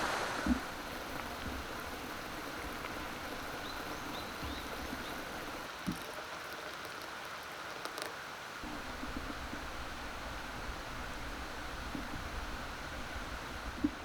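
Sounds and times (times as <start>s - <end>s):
mountain stream rushing: 0.0s - 5.7s.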